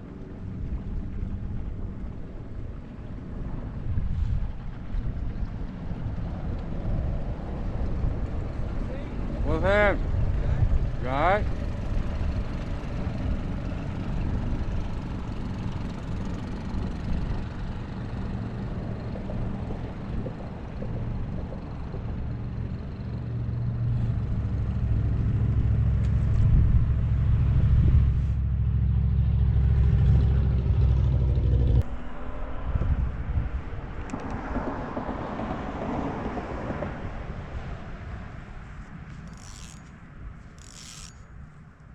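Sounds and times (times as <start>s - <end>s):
boat motor running: 0.0s - 31.8s.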